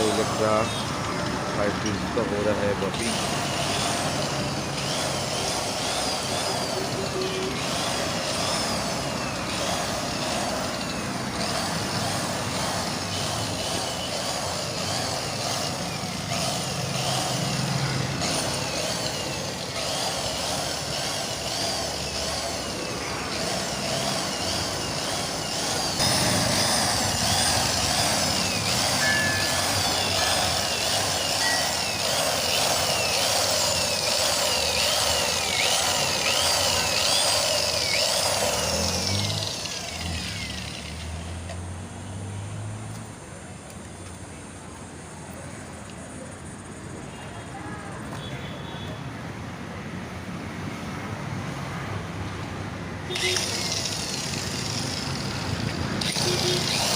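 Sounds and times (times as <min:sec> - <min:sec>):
buffing machine whirring grind: 0:00.0 - 0:41.7, 0:53.1 - 0:56.9.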